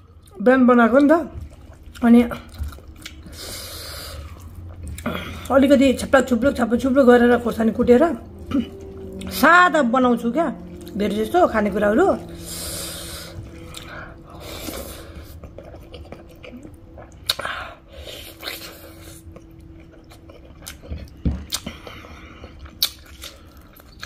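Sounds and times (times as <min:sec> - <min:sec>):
chewing and wet mouth smacks: 0:01.3 - 0:05.5, 0:13.3 - 0:24.0.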